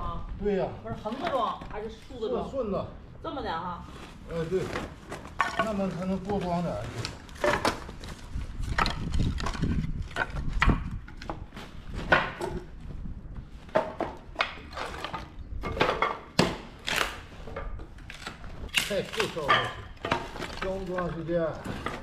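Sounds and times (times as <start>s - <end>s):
firewood pieces knocking together: 5.3s - 6.5s, 7.3s - 11.4s, 12.0s - 12.7s, 13.7s - 22.0s.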